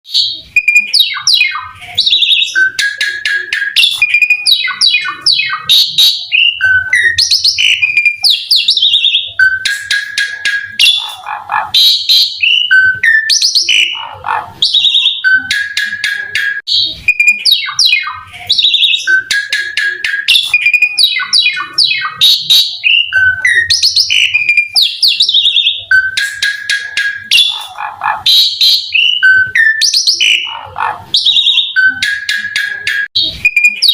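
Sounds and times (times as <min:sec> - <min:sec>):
starling singing: 0:00.1 - 0:33.9.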